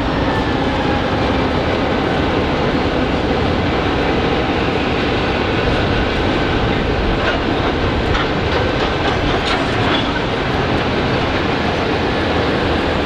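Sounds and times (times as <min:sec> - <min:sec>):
freight train wheels on rails: 0:00.0 - 0:13.0
wheels clicking over rail joints: 0:05.0 - 0:12.9.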